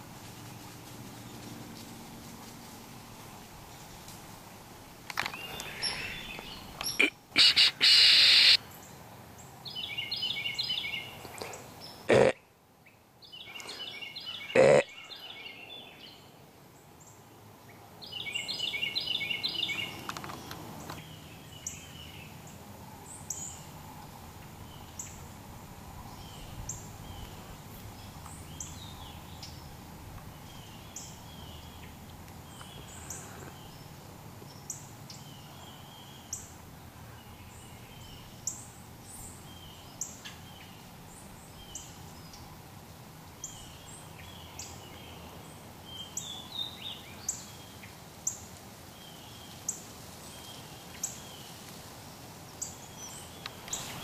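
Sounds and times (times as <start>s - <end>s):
birds chattering: 5.1s - 8.6s, 13.3s - 15.5s, 18.1s - 22.3s, 26.1s - 36.5s.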